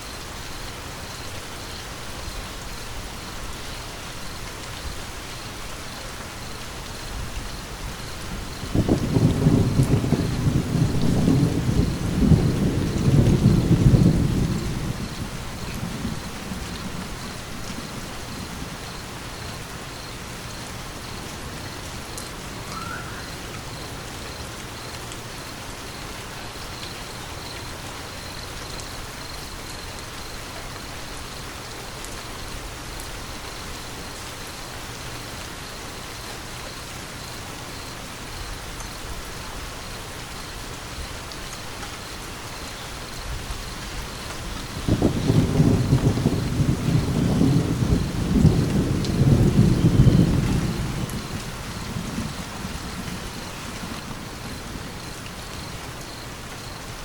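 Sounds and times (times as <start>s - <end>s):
steady rain falling: 0.0s - 57.0s
low thunder rumble: 7.1s - 19.2s, 43.3s - 56.0s.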